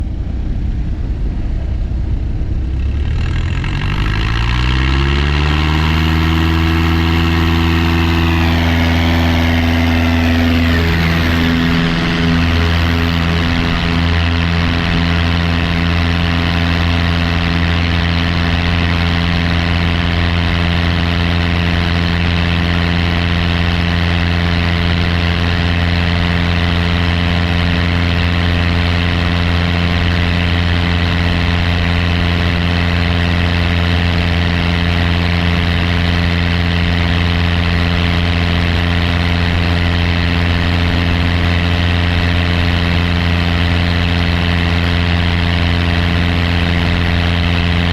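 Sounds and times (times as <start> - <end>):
light aircraft engine drone: 0.0 - 47.9.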